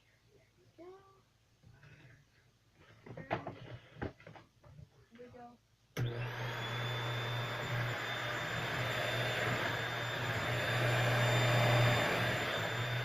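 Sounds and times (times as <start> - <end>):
stick vacuum cleaner running: 6.0 - 13.0.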